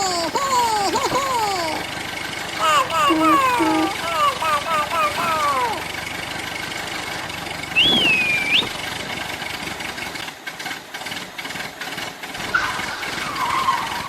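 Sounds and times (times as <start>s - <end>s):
engine idling: 0.0s - 12.4s
whistle-like call: 3.1s - 4.0s, 7.8s - 8.8s.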